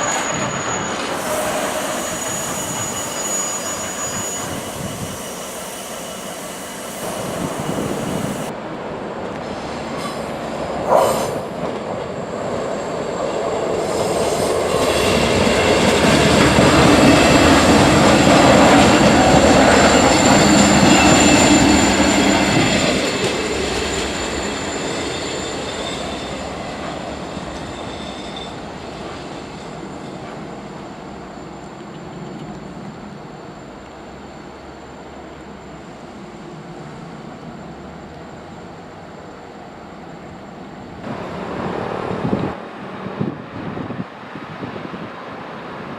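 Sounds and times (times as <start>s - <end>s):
high steady squeal: 0.0s - 8.5s, 12.5s - 40.7s
train wheels rumbling on rail: 0.0s - 45.9s.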